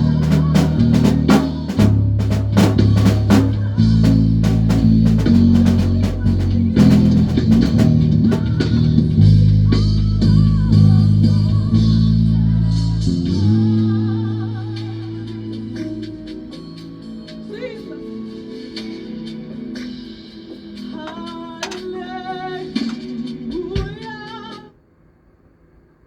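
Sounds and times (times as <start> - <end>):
sustained keyboard chords: 0.0 - 9.4
drum kit: 0.0 - 11.4, 19.8 - 24.7
electric bass guitar: 0.0 - 14.7.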